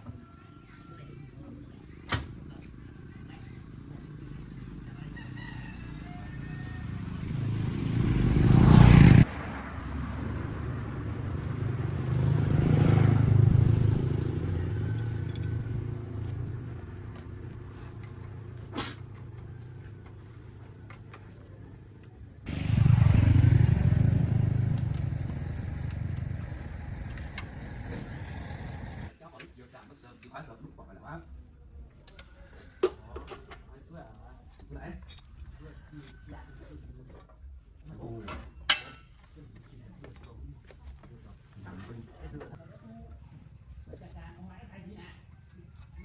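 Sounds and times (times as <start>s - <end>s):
faint rooster crowing: 0.0s - 1.6s, 4.8s - 7.4s, 35.4s - 37.2s
engine rumbling: 0.0s - 29.2s.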